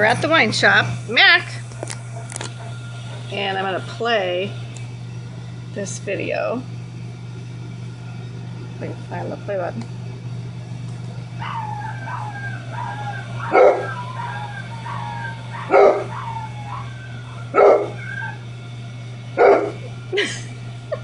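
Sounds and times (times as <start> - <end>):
dog barking loudly: 11.4 - 18.4, 19.4 - 19.8.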